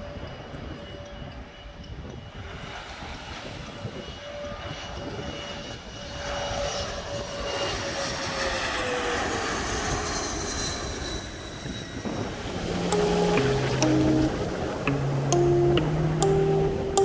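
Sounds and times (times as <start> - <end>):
aircraft flying past: 2.3 - 13.0.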